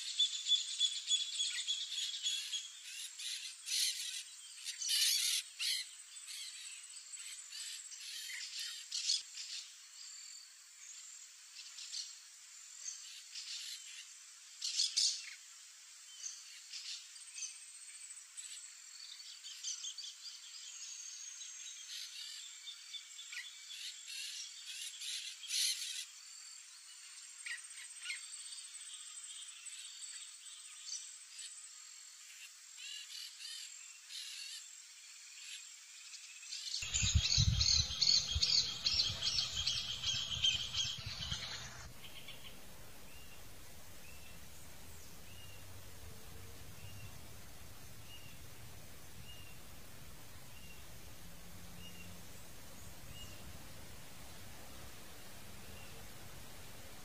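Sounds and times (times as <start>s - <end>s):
birds chirping: 36.5s - 57.0s.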